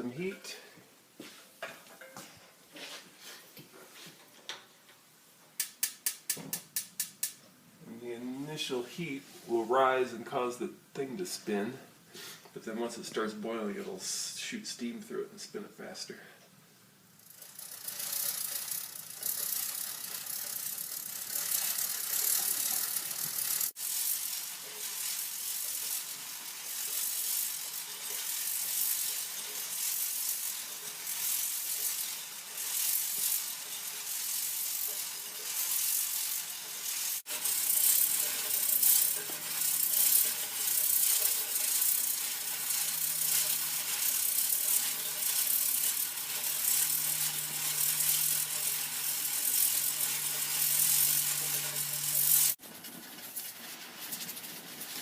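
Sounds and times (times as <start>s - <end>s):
can rotor rattling on pivot: 17.2s - 53.6s
steam hiss: 17.6s - 52.6s.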